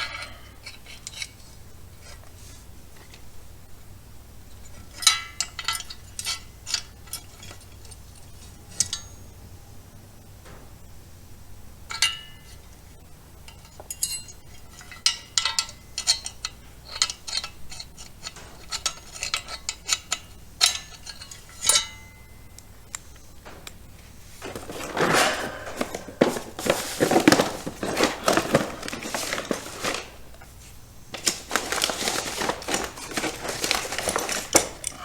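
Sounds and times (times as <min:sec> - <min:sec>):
metallic clicks and clinks: 0:31.1 - 0:35.0.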